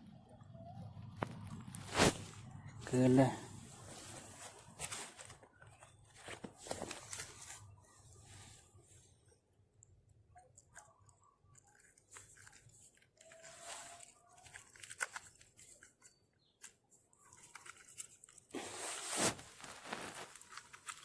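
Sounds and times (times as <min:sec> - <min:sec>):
dry vegetation rustling: 0:01.2 - 0:08.8, 0:11.7 - 0:16.7, 0:17.3 - 0:21.0.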